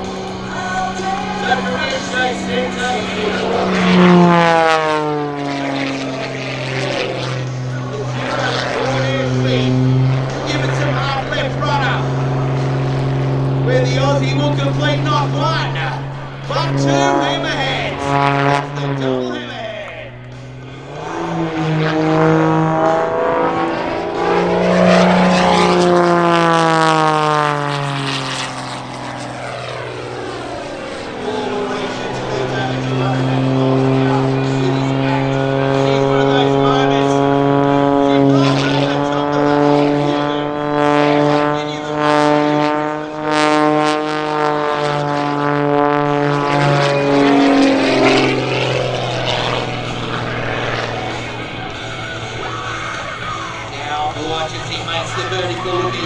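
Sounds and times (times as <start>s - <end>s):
biplane engine and propeller: 0.0s - 56.0s.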